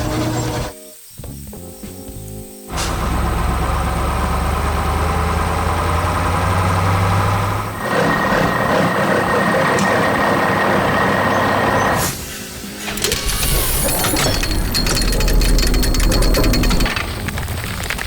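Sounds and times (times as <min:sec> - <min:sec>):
heavy machine engine humming: 0:02.7 - 0:18.0
mechanical working sound: 0:12.8 - 0:17.4.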